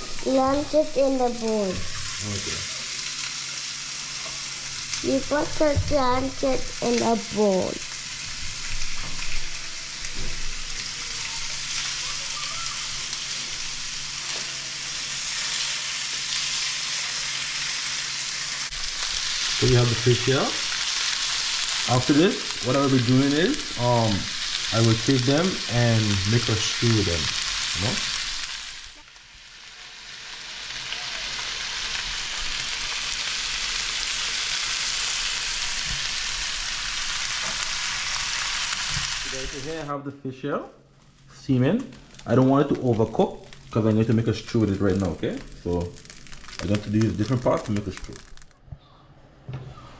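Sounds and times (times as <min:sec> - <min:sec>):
fish sizzling in hot oil: 0:00.0 - 0:39.8, 0:42.0 - 0:48.6
oil popping: 0:41.9 - 0:48.7.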